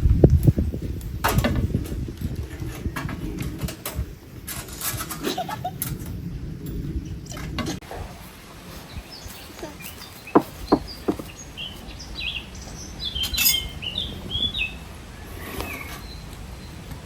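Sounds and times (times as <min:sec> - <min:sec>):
birds chirping: 0:00.5 - 0:17.0
sharp knocks: 0:10.3 - 0:11.3.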